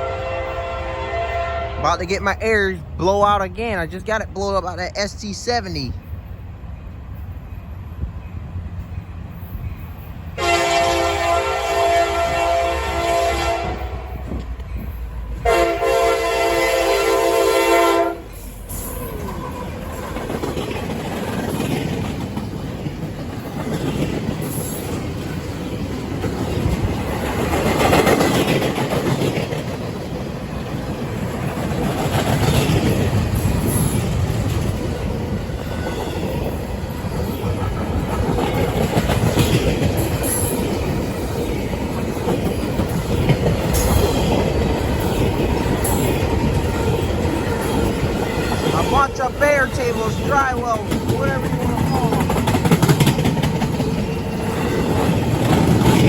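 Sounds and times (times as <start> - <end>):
train wheels rumbling on rail: 0.0 - 56.0
wheels clacking over rail joints: 16.9 - 56.0.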